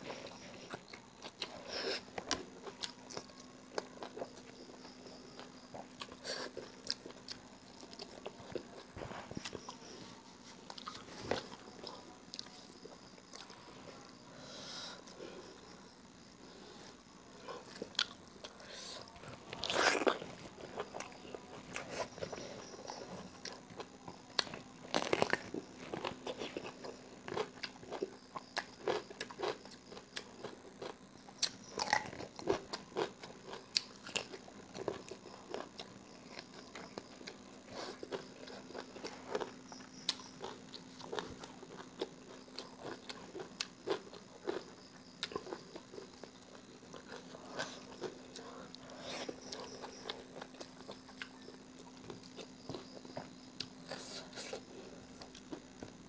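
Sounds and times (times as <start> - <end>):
person chewing crunchy food: 0.0 - 14.0, 15.0 - 56.0
faint steady hum: 0.0 - 56.0.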